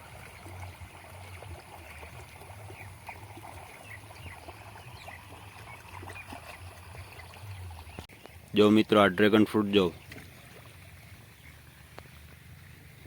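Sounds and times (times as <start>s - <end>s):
water trickling through a channel: 0.0s - 13.0s
small birds chirping: 1.4s - 10.3s.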